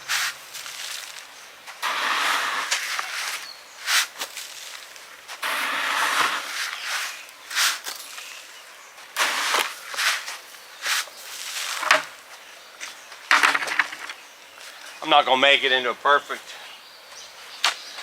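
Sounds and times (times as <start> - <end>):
shovel scraping sand: 0.0 - 8.4, 9.2 - 11.9.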